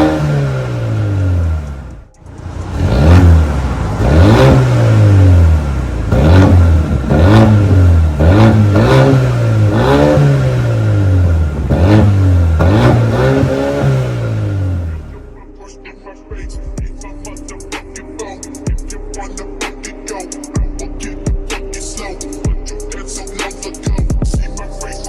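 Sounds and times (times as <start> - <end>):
car engine revving: 0.0 - 15.4.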